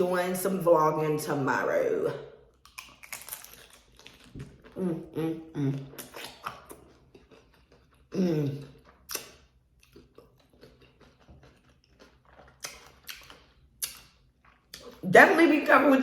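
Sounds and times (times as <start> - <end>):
crunching taco shell: 2.5 - 4.8, 8.7 - 14.9.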